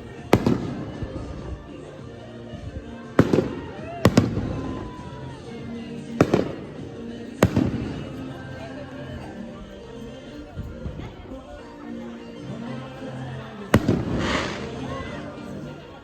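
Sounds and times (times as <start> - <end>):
fireworks bursting with echo: 0.0 - 9.3, 13.7 - 16.0.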